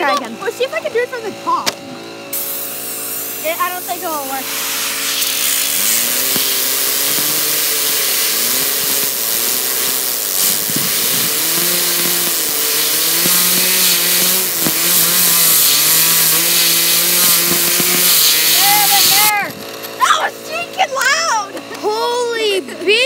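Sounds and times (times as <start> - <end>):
fidget spinner whirring: 0.0 - 23.0
compressed air hissing: 2.3 - 19.4.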